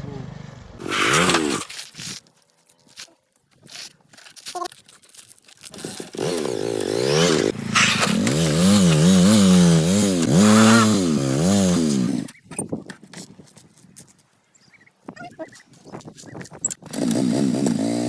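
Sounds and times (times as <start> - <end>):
small engine revving: 0.0 - 1.8, 5.7 - 12.4, 16.7 - 18.0.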